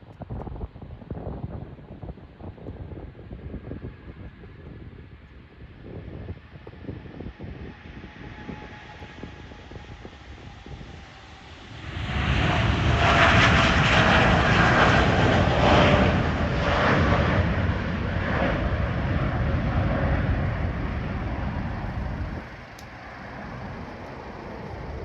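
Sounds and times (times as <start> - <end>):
jet engines roaring past: 6.4 - 25.0.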